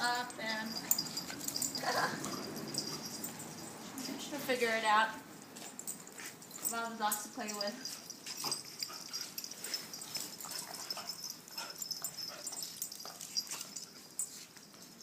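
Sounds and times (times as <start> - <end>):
dogs yipping and whining: 0.8 - 3.9, 8.0 - 14.4.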